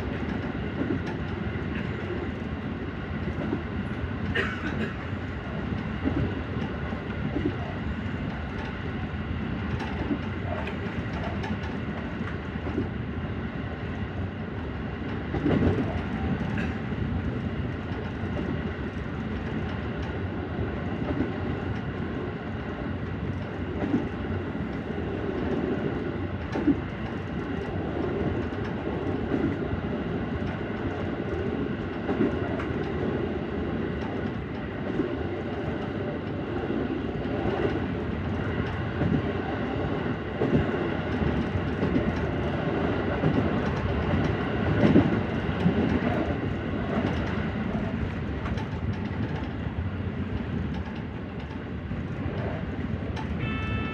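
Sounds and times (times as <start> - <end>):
clicks and knocks from track: 0.0 - 13.0, 15.0 - 53.9
electric train running: 23.7 - 53.9.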